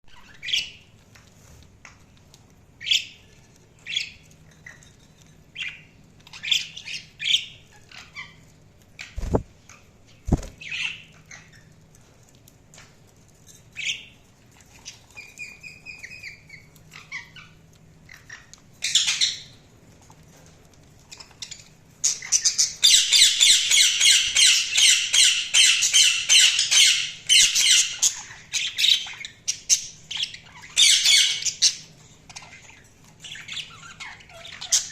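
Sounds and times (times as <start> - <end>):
budgerigars chirping and squawking: 0.1 - 0.9, 5.5 - 11.7, 14.7 - 19.6, 21.1 - 34.9.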